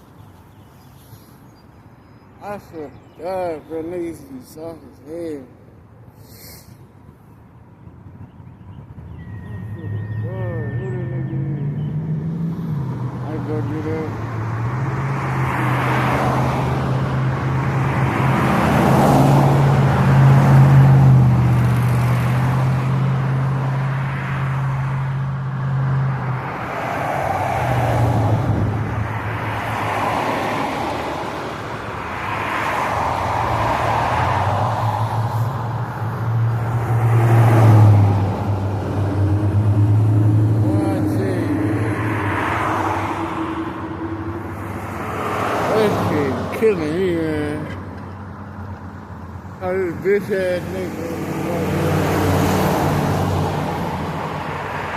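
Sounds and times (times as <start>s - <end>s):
rushing noise: 32.1s - 46.5s.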